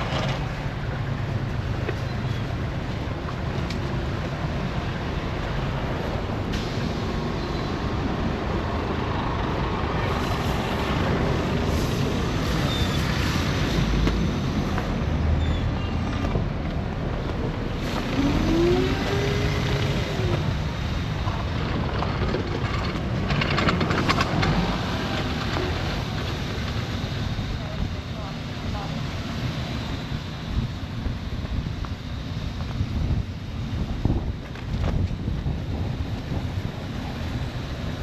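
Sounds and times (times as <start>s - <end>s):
heavy vehicles passing: 0.0s - 32.4s
wind: 0.0s - 38.0s
vehicle traffic rushing: 3.9s - 32.4s.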